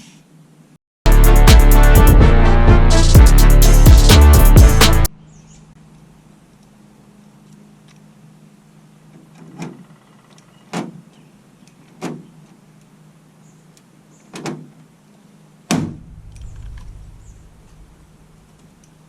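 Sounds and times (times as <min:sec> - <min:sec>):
steady low hum: 0:15.9 - 0:19.0
low rumble: 0:16.0 - 0:18.5.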